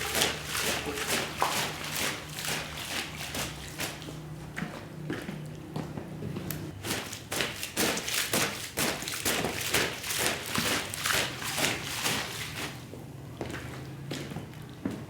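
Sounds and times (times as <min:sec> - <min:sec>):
cleaning tool strokes on wet rug: 0:00.0 - 0:04.2, 0:06.9 - 0:12.8.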